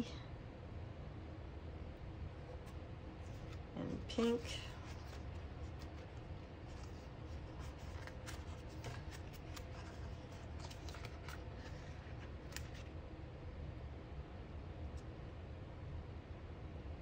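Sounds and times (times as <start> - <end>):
low steady hum: 0.0 - 17.0
paper rustling: 2.5 - 13.0.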